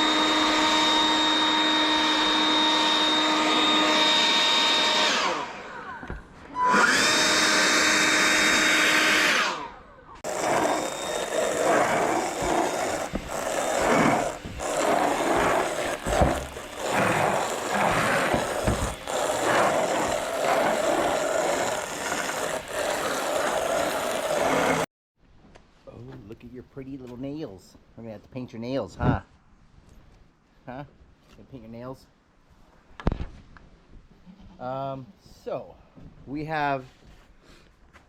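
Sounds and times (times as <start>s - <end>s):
motorised blower whining: 0.0s - 24.9s.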